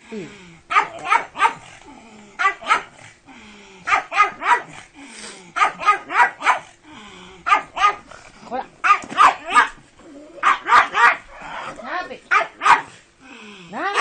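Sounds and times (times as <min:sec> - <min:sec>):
dog barking: 0:00.7 - 0:01.7, 0:02.4 - 0:03.0, 0:03.9 - 0:04.8, 0:05.6 - 0:06.7, 0:07.4 - 0:08.1, 0:08.8 - 0:09.8, 0:10.4 - 0:11.3, 0:12.3 - 0:13.0.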